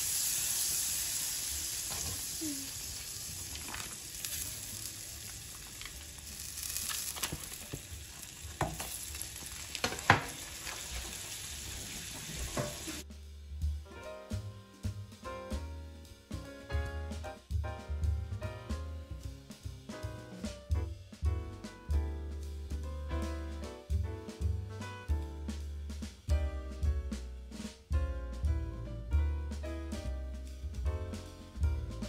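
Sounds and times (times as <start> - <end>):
food sizzling in a pot: 0.0 - 13.3
music: 3.5 - 7.6, 12.6 - 32.0.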